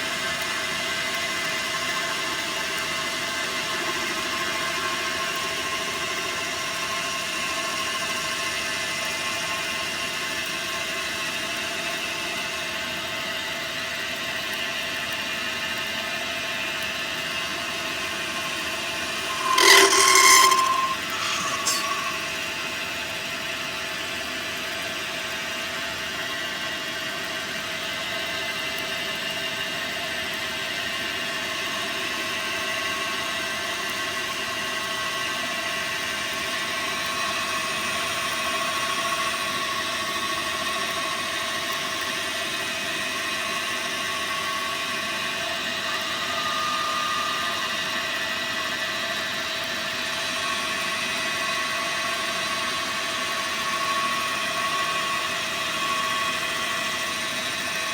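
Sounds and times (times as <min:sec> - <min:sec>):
lathe hum and whine: 0:17.2 - 0:22.6, 0:36.6 - 0:57.9.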